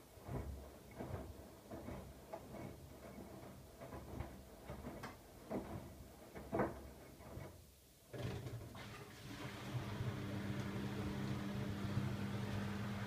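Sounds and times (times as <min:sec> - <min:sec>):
wet laundry swishing: 0:00.0 - 0:06.8
washing machine motor hum: 0:08.1 - 0:13.0.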